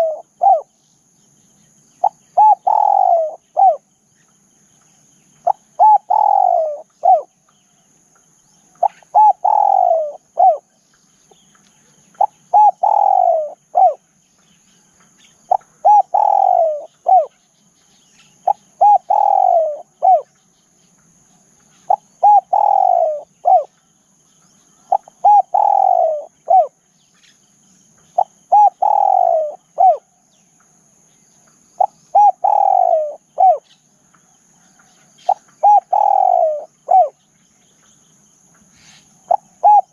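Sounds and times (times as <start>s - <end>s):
dove cooing: 0.0s - 0.7s, 2.0s - 3.8s, 5.4s - 7.3s, 8.8s - 10.8s, 12.1s - 14.0s, 15.5s - 17.4s, 18.4s - 20.3s, 21.8s - 23.7s, 24.8s - 26.8s, 28.2s - 30.1s, 31.8s - 33.8s, 34.6s - 37.2s, 38.8s - 39.9s.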